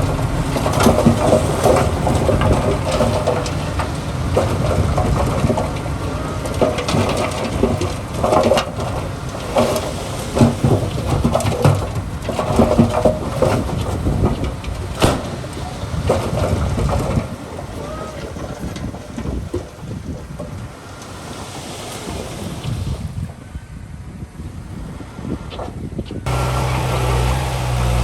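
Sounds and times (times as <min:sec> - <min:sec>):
diesel engine rumble: 0:00.0 - 0:19.2, 0:26.2 - 0:28.0
machinery clanks and knocks: 0:00.0 - 0:19.7, 0:26.3 - 0:28.0.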